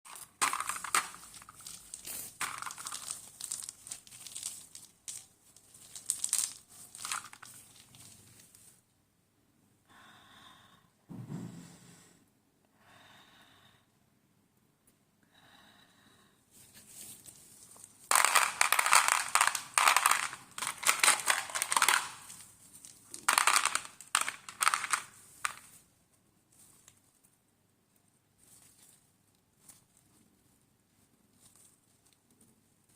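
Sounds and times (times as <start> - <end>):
mothballs crunching: 0.0 - 8.5, 17.7 - 25.8
crinkling and crumpling: 0.1 - 8.8, 16.6 - 32.9.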